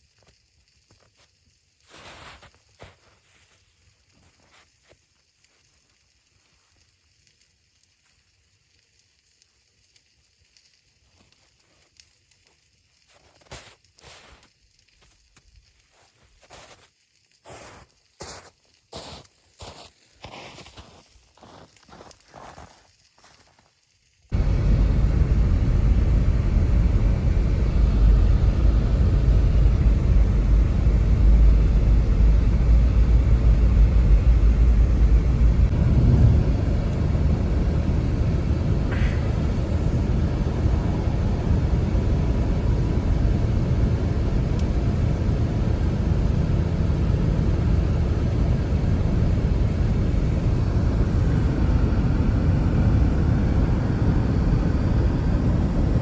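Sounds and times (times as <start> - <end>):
blizzard wind on microphone: 24.3 - 56.0.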